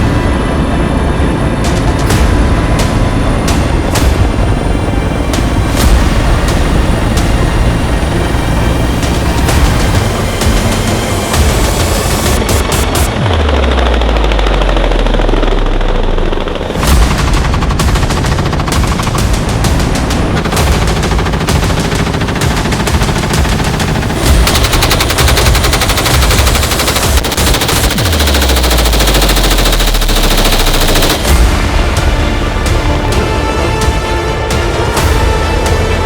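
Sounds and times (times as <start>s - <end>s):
automatic weapon rapid fire: 16.7s - 32.0s.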